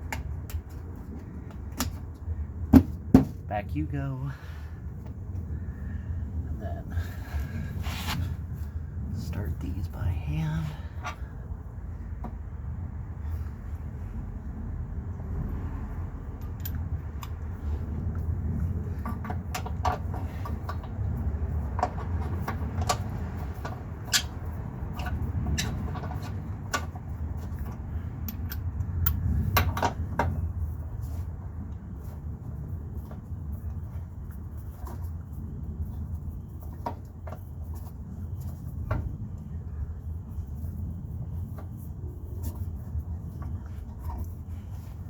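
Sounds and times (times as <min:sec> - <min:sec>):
low steady rumble: 0:00.0 - 0:45.0
metallic clicks of bolts and tools: 0:16.3 - 0:17.5, 0:21.8 - 0:30.3.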